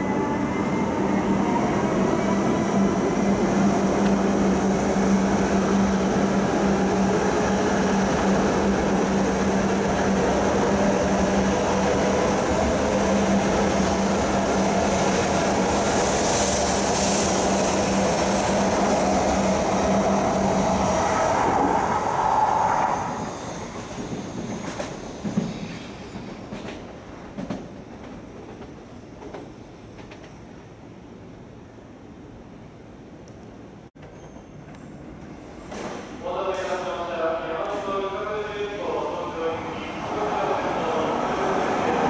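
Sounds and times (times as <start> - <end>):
train wheels rumbling on rail: 0.7 - 30.4.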